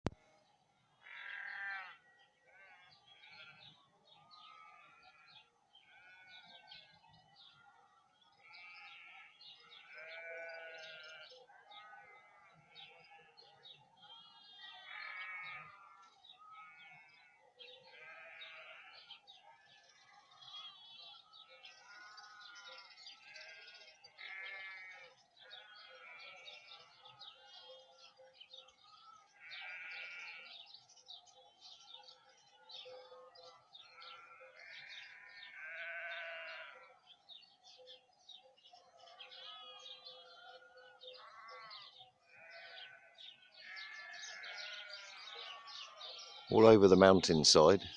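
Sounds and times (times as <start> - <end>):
small birds chirping: 0.0 - 47.9
distant sheep bleating: 1.0 - 7.0, 8.4 - 13.4, 14.5 - 19.3, 21.6 - 27.2, 29.0 - 30.7, 33.6 - 37.1, 39.1 - 40.0, 40.6 - 47.9.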